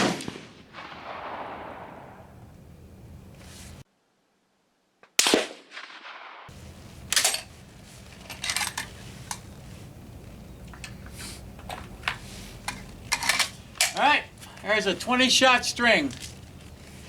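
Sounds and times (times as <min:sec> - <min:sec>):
rifle shot: 0:00.0 - 0:02.4, 0:05.2 - 0:06.5
metallic clicks of rifle handling: 0:06.5 - 0:14.7.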